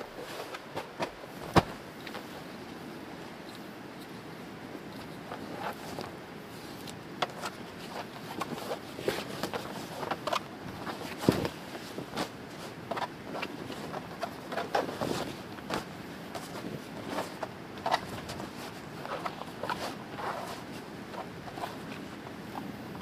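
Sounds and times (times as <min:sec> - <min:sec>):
objects being handled: 0:04.8 - 0:23.0.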